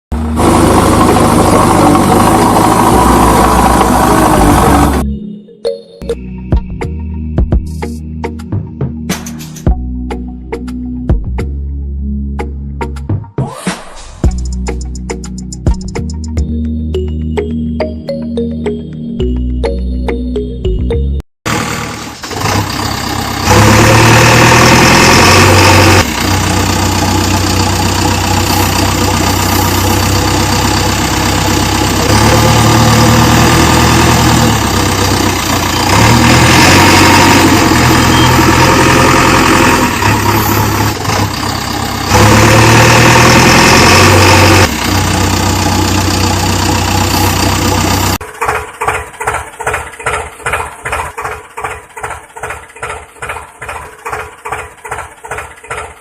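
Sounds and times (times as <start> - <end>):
engine running: 0.1 - 5.1, 21.4 - 56.0.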